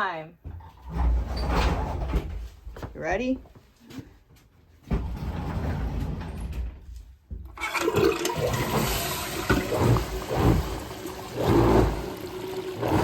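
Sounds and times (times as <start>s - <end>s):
toilet flushing: 7.6s - 13.0s.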